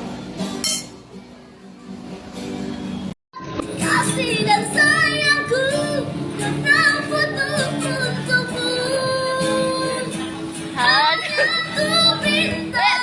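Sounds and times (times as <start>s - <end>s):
instrumental accompaniment: 0.4s - 4.8s
woman singing: 3.6s - 13.0s.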